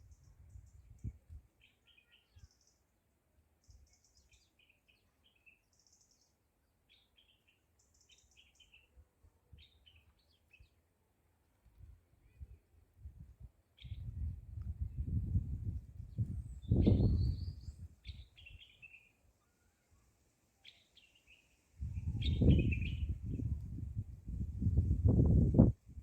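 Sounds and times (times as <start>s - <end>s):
small birds chirping: 0.0s - 2.9s, 3.6s - 9.0s, 9.6s - 10.8s, 13.8s - 20.0s, 20.6s - 23.8s.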